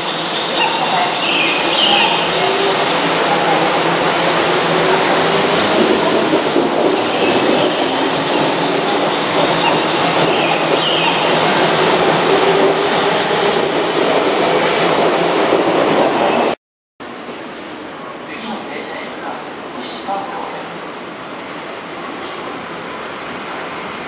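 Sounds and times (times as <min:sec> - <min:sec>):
electric train running: 0:00.0 - 0:16.1.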